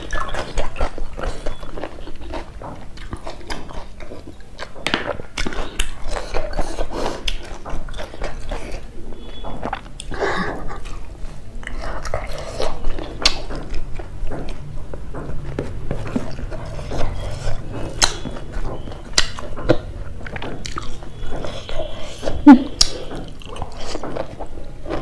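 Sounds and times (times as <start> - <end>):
chewing with wet mouth sounds: 0.0 - 25.0
pitched mouth sound: 21.8 - 23.0.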